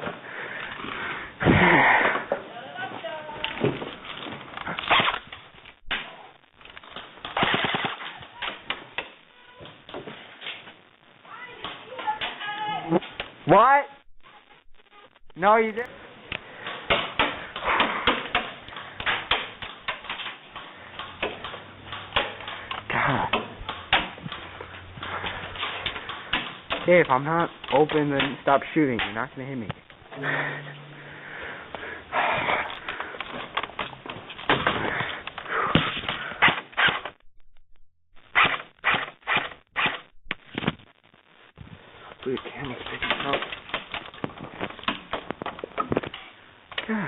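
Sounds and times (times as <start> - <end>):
heavy breathing and panting: 0.0 - 2.4, 15.9 - 19.4, 22.3 - 26.7, 30.1 - 36.6
airsoft guns firing: 7.2 - 8.7.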